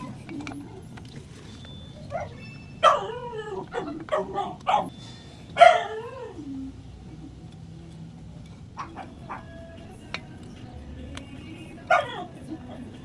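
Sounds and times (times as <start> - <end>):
animal crying: 1.9 - 4.9, 5.5 - 7.3, 8.8 - 9.7, 11.8 - 12.8.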